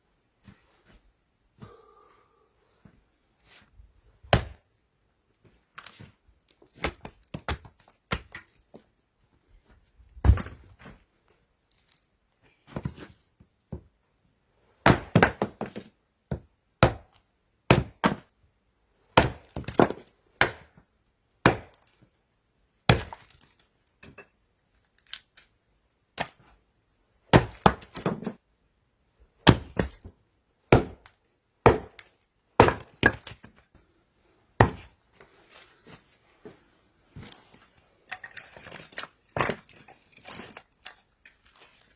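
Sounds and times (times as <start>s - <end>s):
blade chopping wood: 19.2s - 20.7s, 21.4s - 21.8s, 27.3s - 28.4s, 29.5s - 30.0s, 30.7s - 33.4s, 34.6s - 34.9s.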